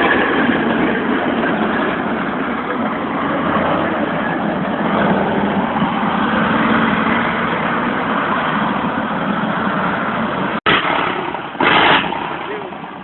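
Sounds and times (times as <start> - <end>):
tracked vehicle diesel engine running: 0.0 - 13.0.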